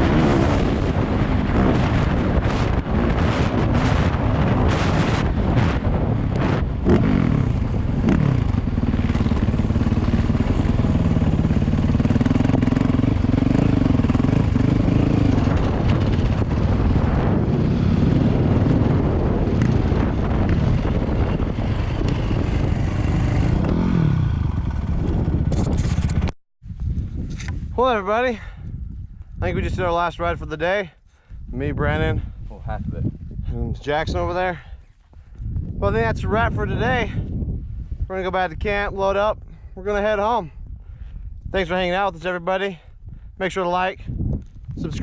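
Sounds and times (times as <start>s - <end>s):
dirt bike engine revving: 0.0s - 26.3s.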